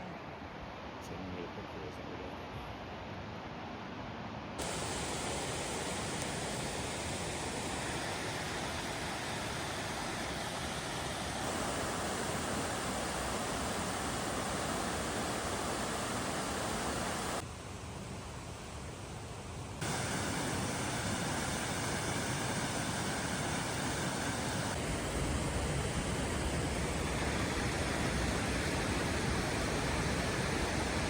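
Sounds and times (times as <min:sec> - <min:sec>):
steady rushing noise: 0:04.6 - 0:17.4, 0:19.8 - 0:31.0.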